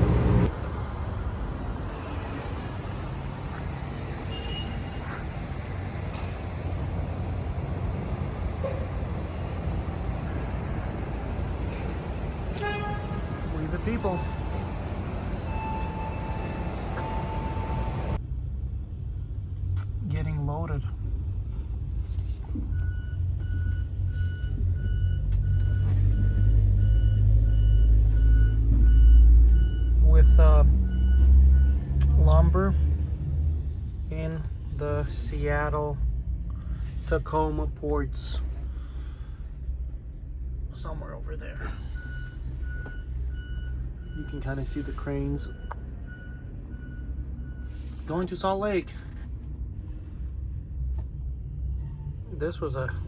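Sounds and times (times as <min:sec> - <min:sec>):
loud low engine sound: 0:00.0 - 0:18.2
low vehicle rumble: 0:00.0 - 0:53.0.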